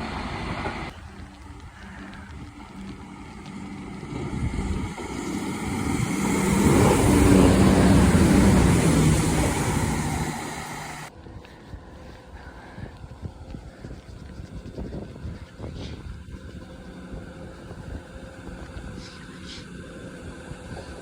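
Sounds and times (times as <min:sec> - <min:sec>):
diesel train engine drone: 0:00.0 - 0:11.1, 0:11.8 - 0:21.0
train wheels rumbling: 0:00.0 - 0:11.1.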